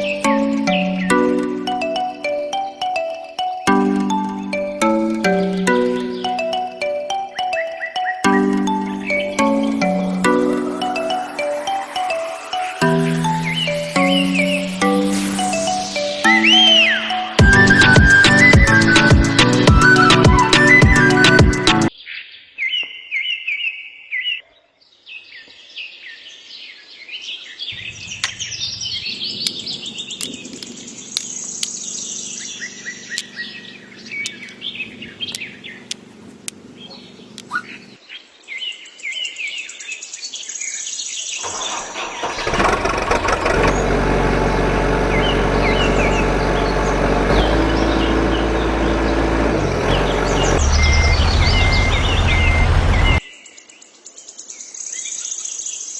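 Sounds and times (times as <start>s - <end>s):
birds chirping: 0.0s - 22.0s, 27.7s - 38.0s, 43.4s - 53.8s
engine rumble: 27.8s - 38.0s, 41.5s - 53.2s.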